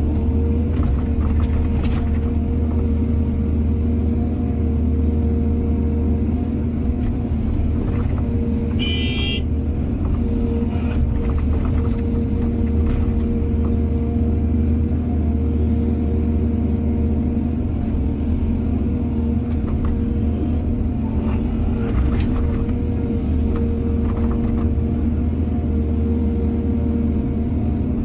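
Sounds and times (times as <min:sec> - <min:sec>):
diesel excavator engine running: 0:00.0 - 0:28.0.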